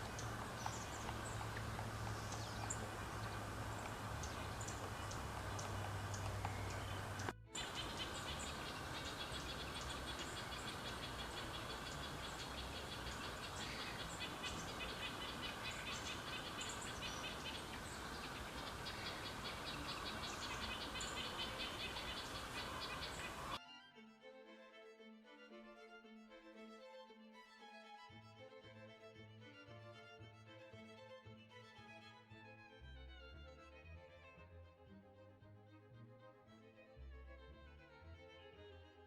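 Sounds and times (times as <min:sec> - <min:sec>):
outdoor background noise: 0:00.0 - 0:23.6
small birds chirping and twittering: 0:00.0 - 0:23.6.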